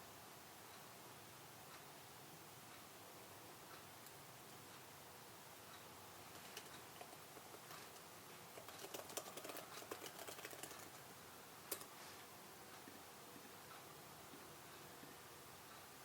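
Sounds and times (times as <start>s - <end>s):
typing on computer keyboard: 6.3s - 11.1s.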